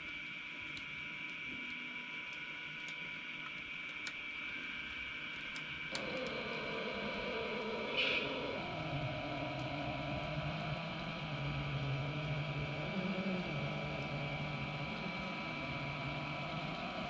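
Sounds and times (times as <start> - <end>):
model train electric motors whining: 5.8 - 17.0
rolling rumble: 6.0 - 17.0.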